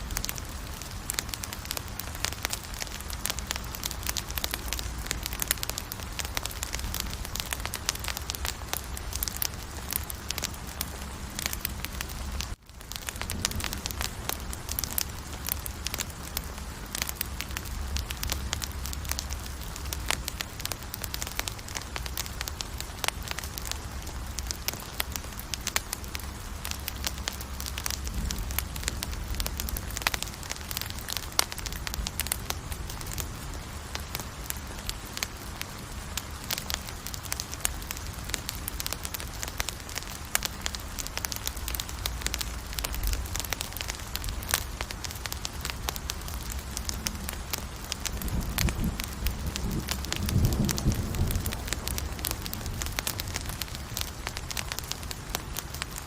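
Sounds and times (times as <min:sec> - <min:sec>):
campfire pops and crackles: 0:00.0 - 0:56.0
low rumble of flames: 0:00.0 - 0:56.0.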